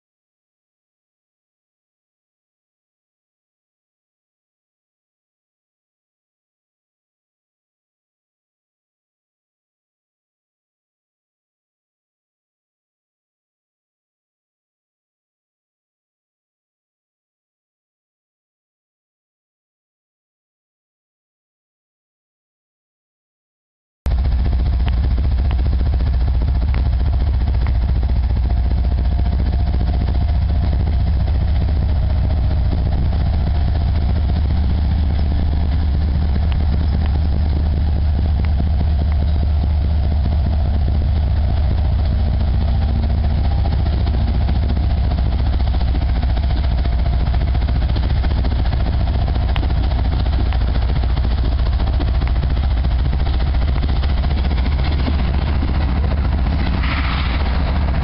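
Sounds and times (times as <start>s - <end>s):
diesel locomotive engines droning: 24.1s - 58.0s.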